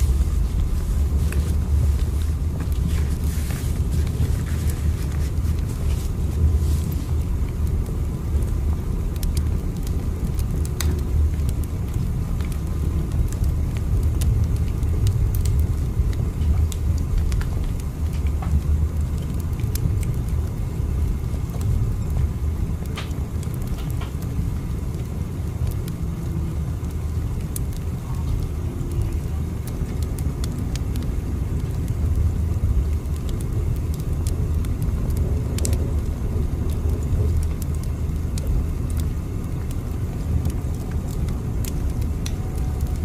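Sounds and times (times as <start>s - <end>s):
moving train rumble: 0.0s - 24.2s, 40.7s - 43.0s.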